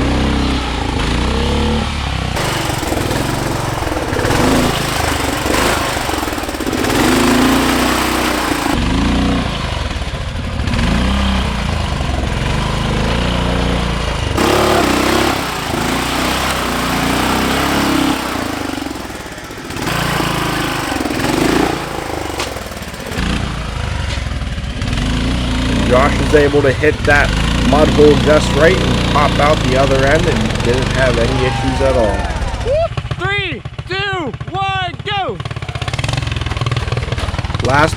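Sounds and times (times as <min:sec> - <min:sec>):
lawn tractor engine revving: 0:02.4 - 0:09.0, 0:12.4 - 0:23.8, 0:24.9 - 0:32.6.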